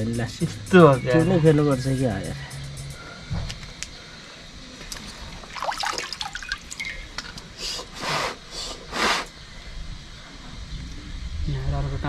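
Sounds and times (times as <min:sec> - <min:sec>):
water splashing and dripping: 0:04.8 - 0:07.5
swishes in water: 0:05.0 - 0:07.1.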